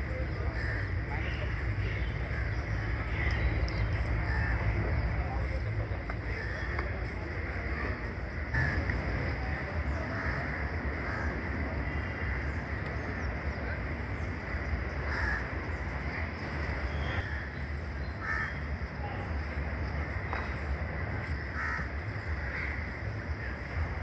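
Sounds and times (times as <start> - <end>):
low outdoor rumble: 0.0 - 24.0
crows cawing: 0.5 - 1.7, 4.2 - 4.8, 6.3 - 6.8, 8.5 - 8.9, 10.1 - 11.4, 15.0 - 15.8, 17.0 - 17.6, 18.2 - 18.7, 21.4 - 23.0.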